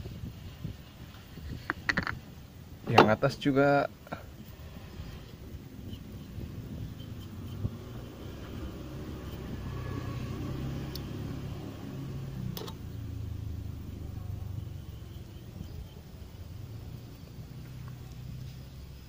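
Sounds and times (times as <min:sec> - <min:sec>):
motor engine humming: 0:04.3 - 0:19.0.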